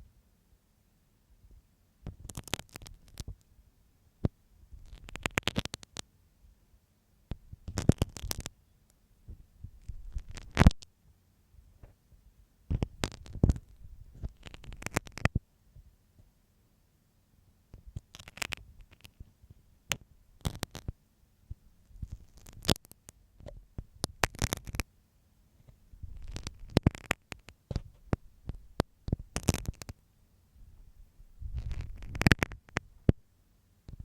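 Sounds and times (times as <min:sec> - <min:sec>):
crackly scratching and tapping: 0:02.0 - 0:03.5, 0:04.2 - 0:06.1, 0:07.3 - 0:10.9, 0:12.7 - 0:15.4, 0:17.7 - 0:24.9, 0:25.6 - 0:30.0, 0:30.8 - 0:33.2.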